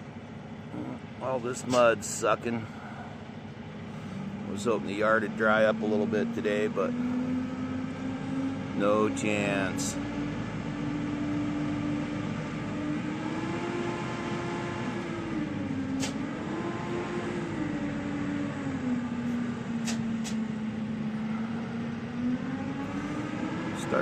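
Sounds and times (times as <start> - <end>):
heavy engine revving under load: 0.0 - 24.0
short sharp clicks: 16.0 - 16.2, 19.8 - 20.4.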